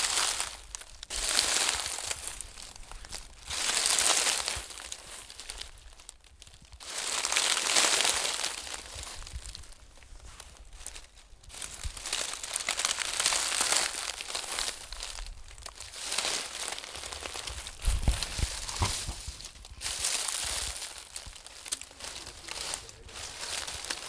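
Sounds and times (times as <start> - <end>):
crinkly rustling and scratching: 0.0 - 24.0
dull thumps: 17.8 - 19.6.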